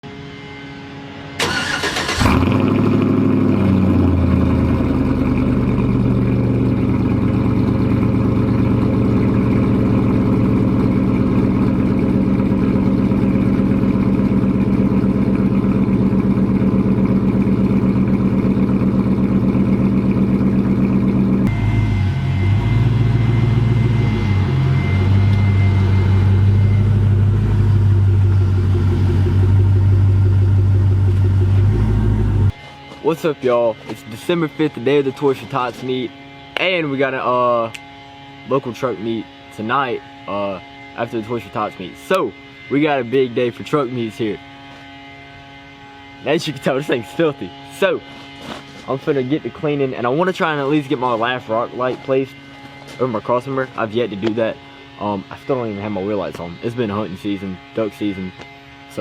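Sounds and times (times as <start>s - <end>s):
truck engine cranking: 1.4s - 6.3s
truck engine idling: 1.4s - 32.9s.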